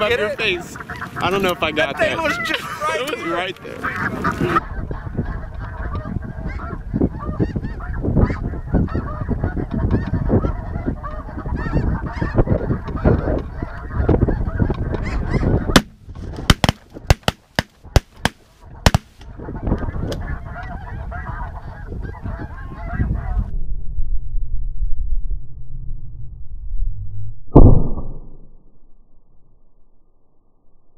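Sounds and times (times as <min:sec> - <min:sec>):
snow geese honking: 0:00.0 - 0:15.8, 0:18.8 - 0:23.5
shotgun shots: 0:16.5 - 0:19.2.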